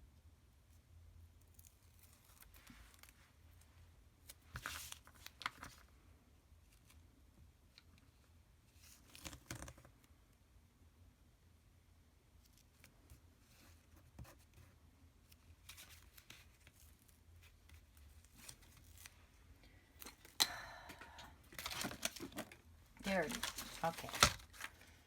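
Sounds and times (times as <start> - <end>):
paper rustle: 4.2 - 5.9, 15.3 - 19.4, 21.5 - 25.0.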